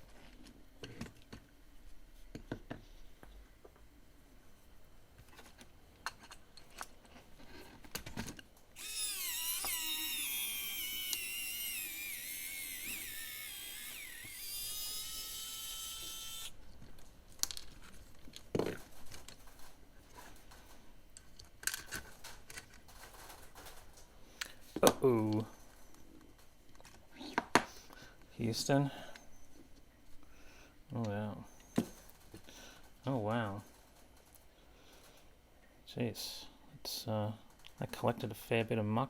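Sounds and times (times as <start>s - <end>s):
small parts knocking and tapping: 5.2s - 23.8s
small electric motor whining: 8.8s - 16.6s.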